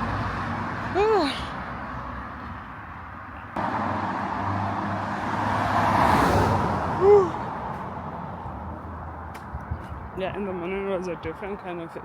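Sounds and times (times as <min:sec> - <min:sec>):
car passing: 0:00.0 - 0:09.6.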